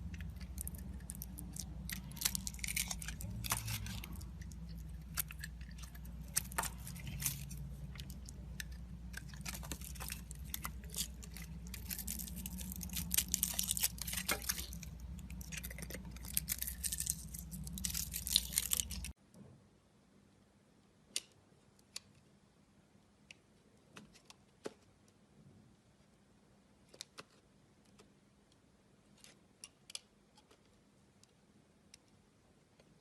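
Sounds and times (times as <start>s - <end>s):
knife carving soap: 0.0s - 19.2s, 26.8s - 33.0s.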